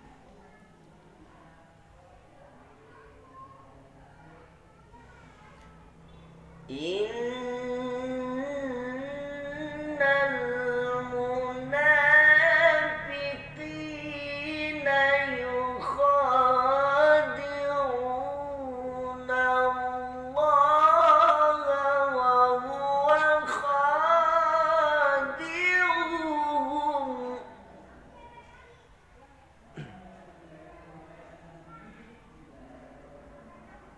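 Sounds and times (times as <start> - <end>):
solo voice chanting recitation: 6.4 - 27.9.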